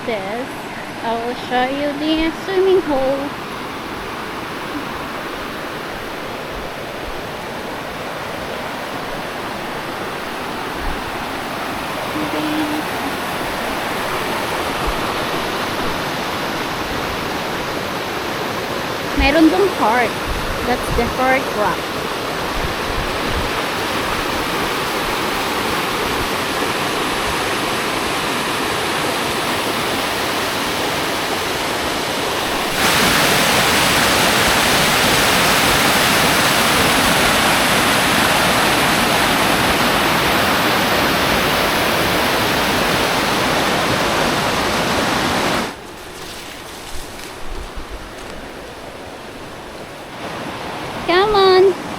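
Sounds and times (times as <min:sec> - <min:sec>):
waterfall roaring: 0:00.0 - 0:51.9.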